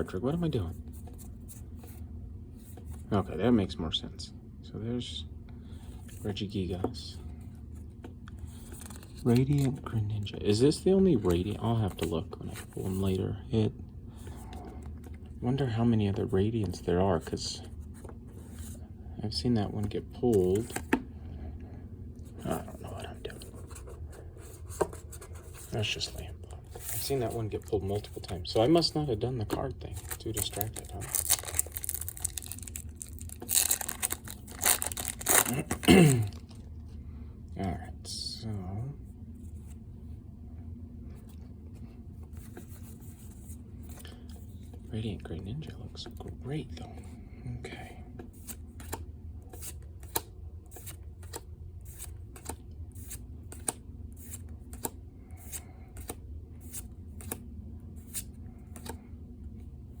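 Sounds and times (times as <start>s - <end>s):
low room hum: 0.0s - 60.0s
packaging crinkling: 30.0s - 36.5s.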